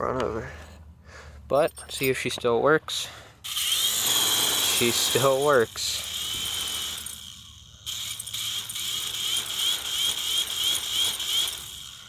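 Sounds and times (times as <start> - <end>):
toy helicopter motor whining: 3.4 - 12.0.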